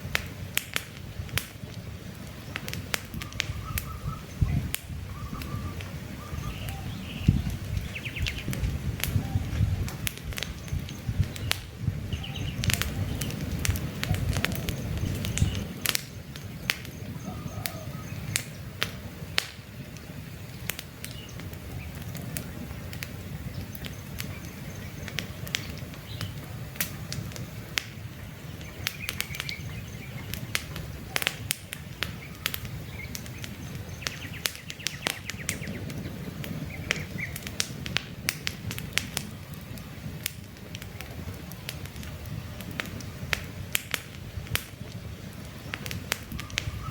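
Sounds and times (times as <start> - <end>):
campfire crackling and popping: 0.0 - 46.9
faint birds chirping: 2.3 - 37.6, 44.8 - 46.9.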